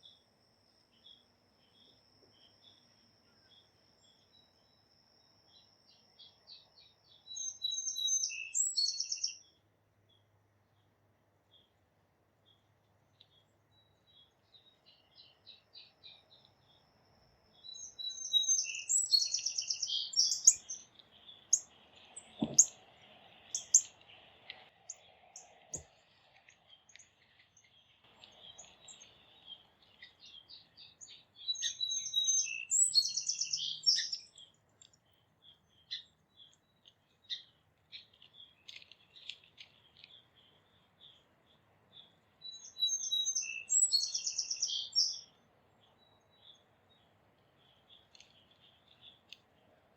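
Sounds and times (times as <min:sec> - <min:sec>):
songbirds singing: 0:00.0 - 0:49.9
dull thumps: 0:22.4 - 0:22.7
short bird chirps: 0:28.3 - 0:34.5, 0:42.0 - 0:45.3.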